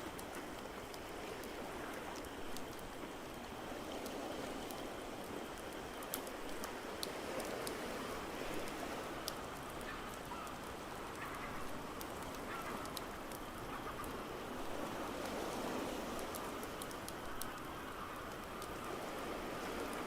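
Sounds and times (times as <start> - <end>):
rain: 0.0 - 20.0
waves: 0.0 - 20.0
fireplace crackling and popping: 5.5 - 7.8, 8.6 - 13.7, 16.2 - 19.1.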